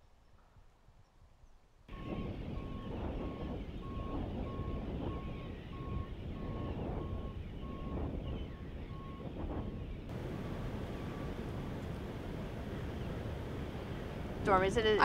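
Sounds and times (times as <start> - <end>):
reversing alarm beeping: 1.9 - 9.3
loud low rumble: 10.1 - 15.0.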